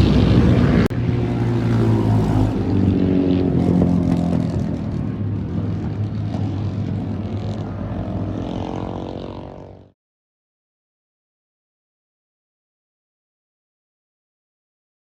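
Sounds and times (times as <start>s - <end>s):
motorcycle engine running: 0.0s - 9.9s.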